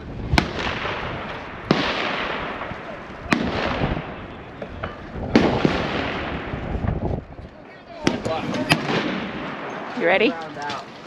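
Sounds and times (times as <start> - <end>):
rifle shots with rolling echo: 0.3 - 7.0, 7.6 - 10.4.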